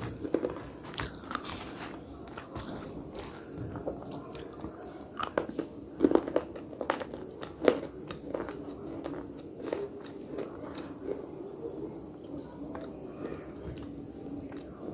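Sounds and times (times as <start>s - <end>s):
crunching of hard brittle pieces: 0.0s - 11.2s
chewing: 0.0s - 14.9s.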